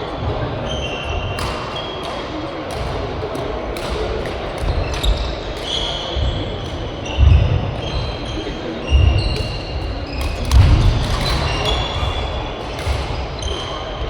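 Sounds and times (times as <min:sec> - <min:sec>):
rackets hitting shuttlecock: 0:01.4 - 0:06.8, 0:09.4 - 0:13.9
shoes squeaking on floor: 0:04.7 - 0:14.0.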